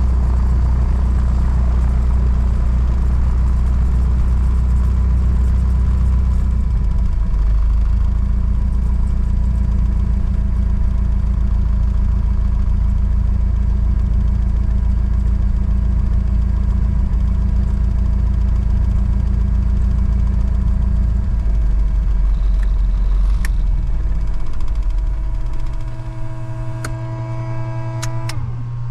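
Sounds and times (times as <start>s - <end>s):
aircraft engine droning: 20.4s - 28.9s.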